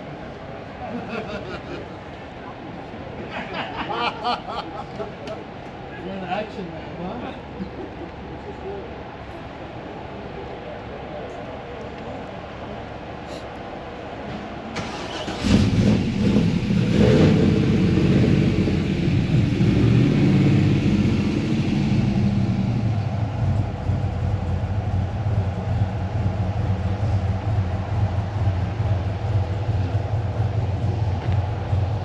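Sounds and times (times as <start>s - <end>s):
car engine starting and idling: 14.7s - 32.0s.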